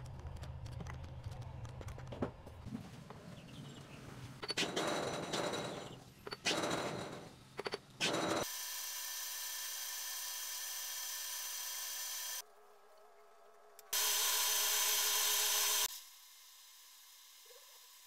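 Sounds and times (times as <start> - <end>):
small electric power tool running: 8.0 - 12.4, 13.8 - 18.0.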